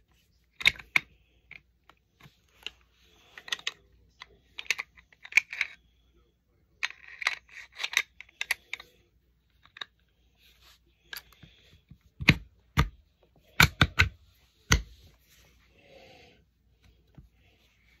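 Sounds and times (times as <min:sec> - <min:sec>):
pistol parts clicking and clacking: 0:04.6 - 0:05.8, 0:06.8 - 0:08.9.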